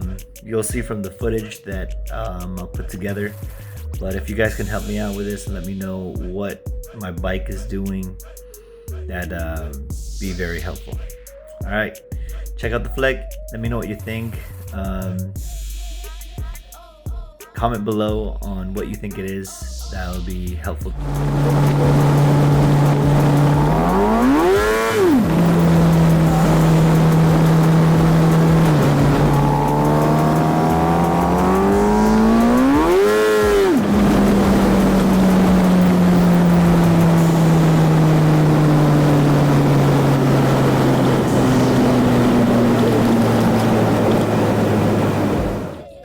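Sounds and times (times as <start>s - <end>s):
motorcycle engine revving: 20.9s - 45.9s.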